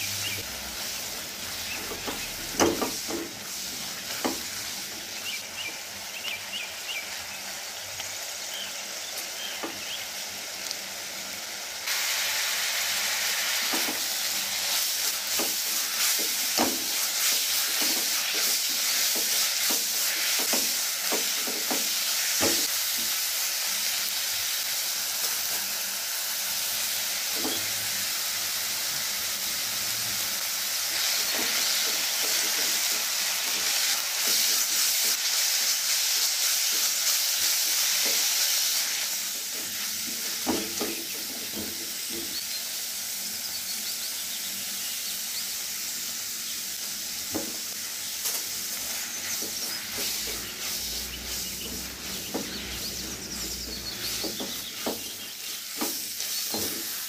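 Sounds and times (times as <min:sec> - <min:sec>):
food sizzling in a frying pan: 0:00.0 - 0:57.0
spatula knocking and scraping: 0:55.7 - 0:57.0.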